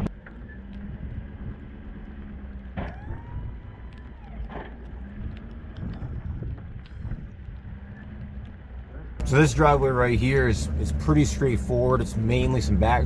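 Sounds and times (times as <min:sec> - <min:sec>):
diesel pickup engine running: 0:09.2 - 0:13.0.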